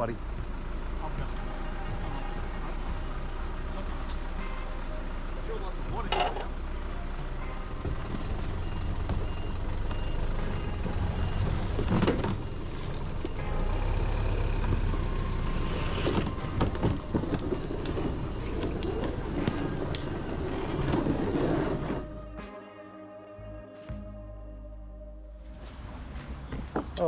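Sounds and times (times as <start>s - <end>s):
vehicle engine rumbling: 0.0s - 22.4s
faint beeping: 7.0s - 20.8s
knocks and clatter: 14.7s - 21.9s.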